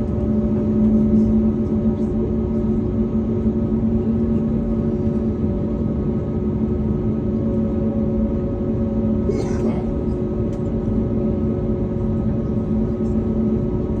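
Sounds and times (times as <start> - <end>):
jet engine cabin rumble: 0.0 - 14.0.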